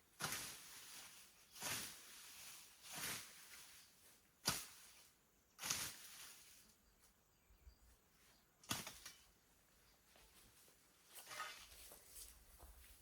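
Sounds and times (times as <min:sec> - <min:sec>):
scythe swishing through grass: 0:00.0 - 0:06.6, 0:08.7 - 0:09.2
sharp crack: 0:04.4 - 0:04.9, 0:08.6 - 0:09.2.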